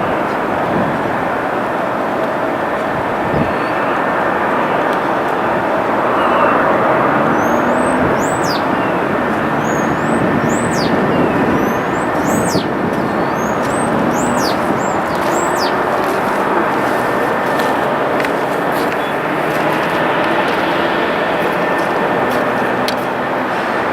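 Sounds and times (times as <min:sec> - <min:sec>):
distant engine roar: 0:00.0 - 0:23.9
small birds chirping: 0:06.2 - 0:20.8.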